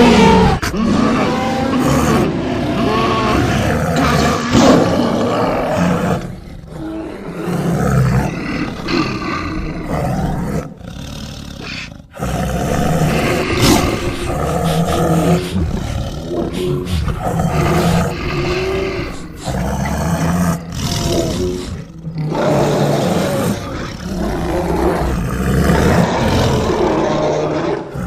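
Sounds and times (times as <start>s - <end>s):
cartoon bear roaring and growling: 0.0s - 28.0s.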